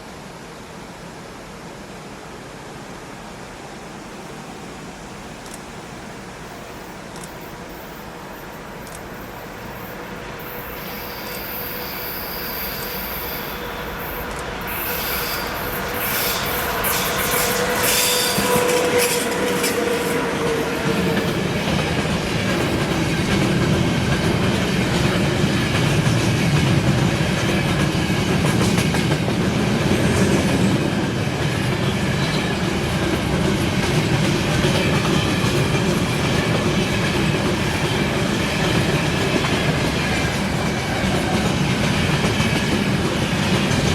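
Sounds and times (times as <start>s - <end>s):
train wheels rumbling on rails: 6.2s - 43.9s
rail ringing and clicks: 7.0s - 43.9s.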